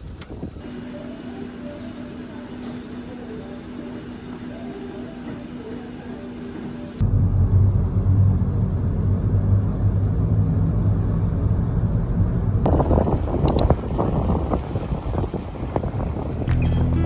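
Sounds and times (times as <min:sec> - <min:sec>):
vehicle driving rumble: 0:00.0 - 0:17.0
sharp clicks: 0:13.4 - 0:13.8.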